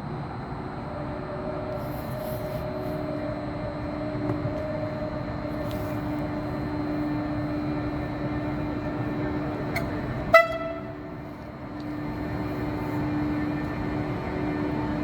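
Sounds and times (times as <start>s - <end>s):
electric locomotive humming: 0.0s - 15.0s
train horn toot: 10.2s - 11.1s.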